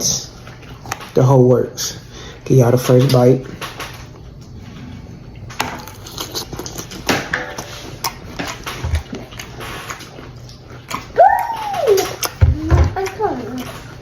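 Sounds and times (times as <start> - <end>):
crunchy food chewing: 2.8 - 12.4.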